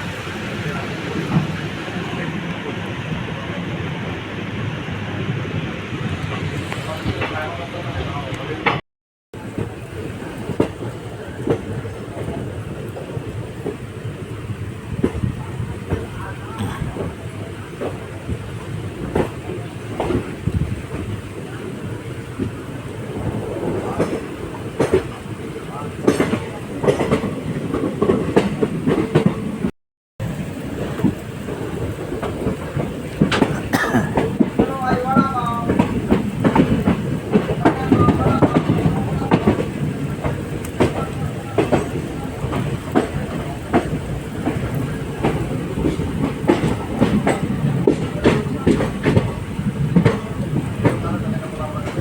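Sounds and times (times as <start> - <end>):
train wheels clacking over rail joints: 23.2 - 29.7, 30.7 - 52.0.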